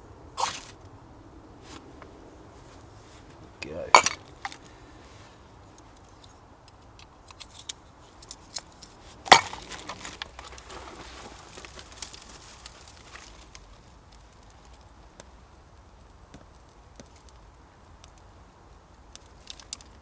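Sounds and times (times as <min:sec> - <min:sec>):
small clicks and clinks: 0:05.7 - 0:10.6.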